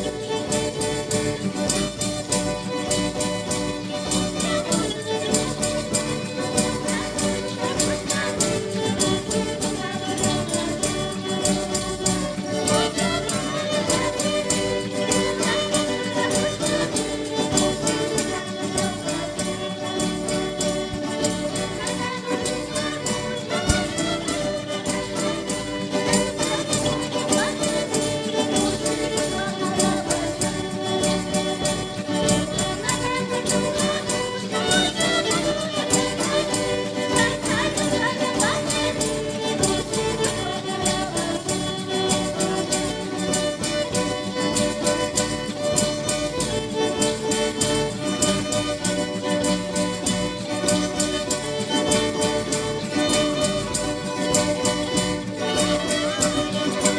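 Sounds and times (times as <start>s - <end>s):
church band playing: 0.0s - 56.9s
violin melody: 0.0s - 56.9s.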